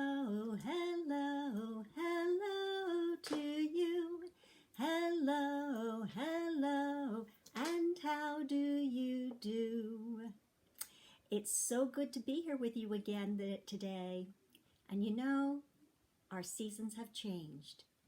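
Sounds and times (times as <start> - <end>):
woman singing unaccompanied: 0.0 - 10.4.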